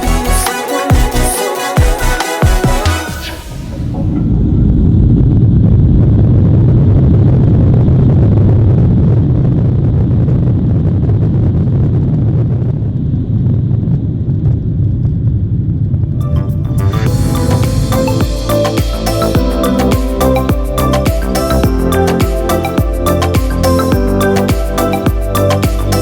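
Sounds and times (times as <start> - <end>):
jet engine rumble in cabin: 3.6 - 18.5
rushing air hiss: 17.1 - 23.8.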